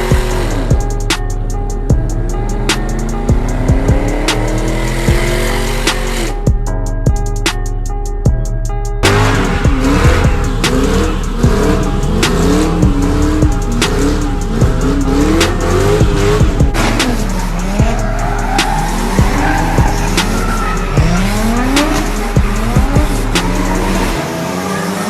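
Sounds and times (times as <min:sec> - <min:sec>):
car engine revving: 0:00.0 - 0:07.6, 0:09.0 - 0:25.0
music with steady beat: 0:00.0 - 0:24.2
tyres squealing: 0:16.8 - 0:25.0.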